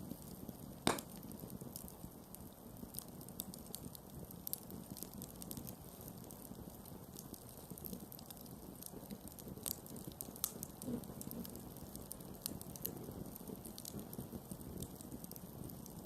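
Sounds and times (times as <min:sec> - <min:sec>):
campfire crackling: 0:00.0 - 0:16.0
sharp fire pops: 0:00.8 - 0:01.4.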